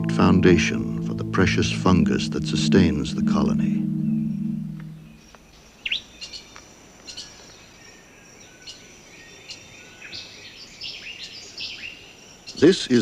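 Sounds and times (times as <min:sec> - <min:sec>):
high insect drone: 0:00.4 - 0:05.2.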